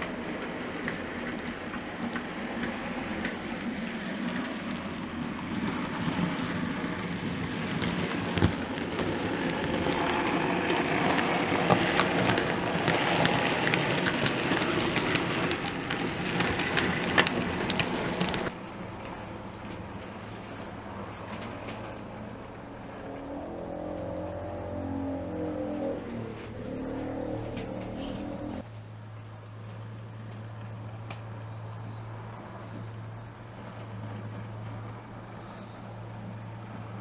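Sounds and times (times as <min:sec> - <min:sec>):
model train running on track: 0:00.0 - 0:23.1.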